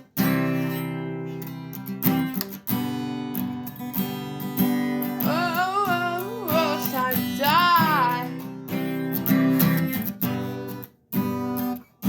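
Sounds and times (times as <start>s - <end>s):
acoustic guitar strumming: 0.0s - 12.0s
person singing: 5.0s - 8.6s.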